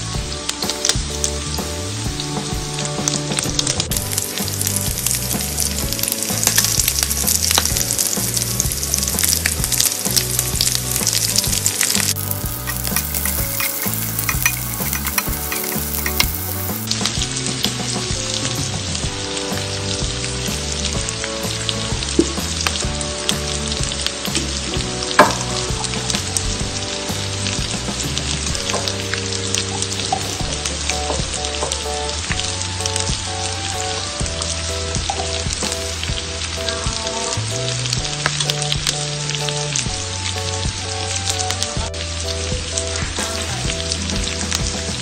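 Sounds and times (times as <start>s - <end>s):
meat and onion sizzling in oil: 0.0s - 45.0s
spatula stirring: 9.2s - 16.9s.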